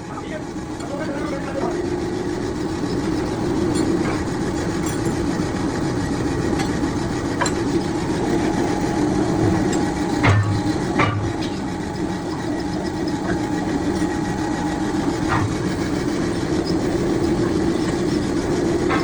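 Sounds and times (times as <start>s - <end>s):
workshop machinery humming: 0.0s - 19.0s
sharp metal knocks: 9.7s - 11.7s.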